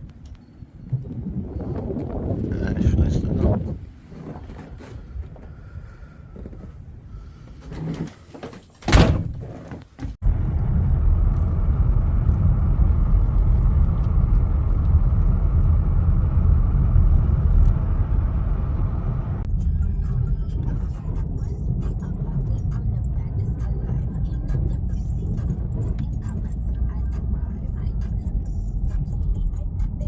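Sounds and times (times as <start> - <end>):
loud steady low rumble: 10.2 - 30.0.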